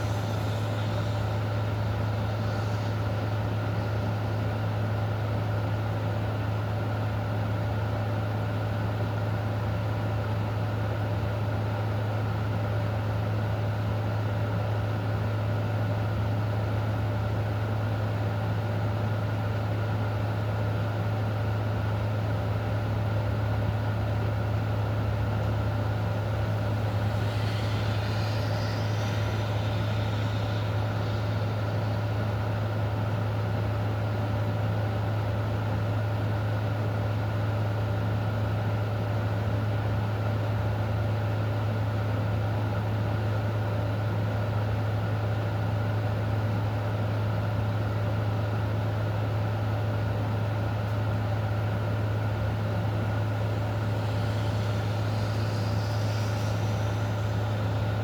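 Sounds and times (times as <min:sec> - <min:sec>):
low mechanical hum: 0:00.0 - 0:58.0
faint steady tones: 0:25.0 - 0:34.2, 0:51.4 - 0:58.0.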